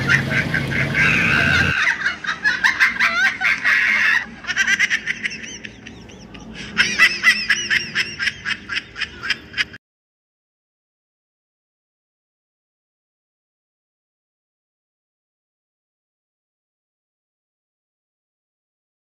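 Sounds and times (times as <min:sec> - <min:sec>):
bird squawking and cackling: 0:00.0 - 0:09.8.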